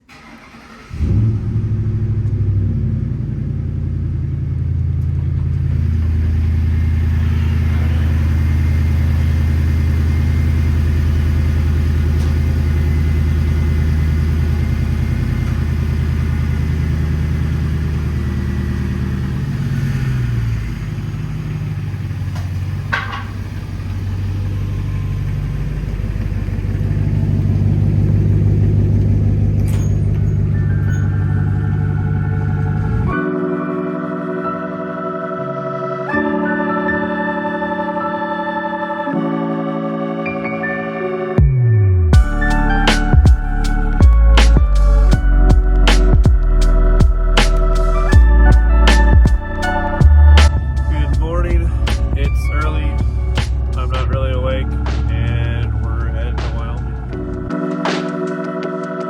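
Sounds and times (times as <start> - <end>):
piston aircraft engine running: 0.1 - 33.2, 42.2 - 58.8.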